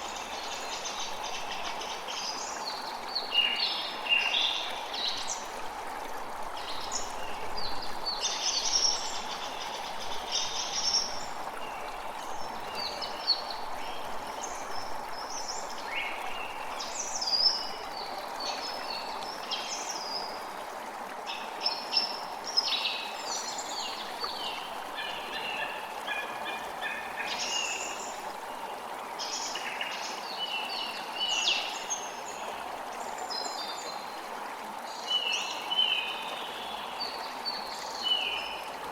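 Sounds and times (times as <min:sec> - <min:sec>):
creek running: 0:00.0 - 0:38.9.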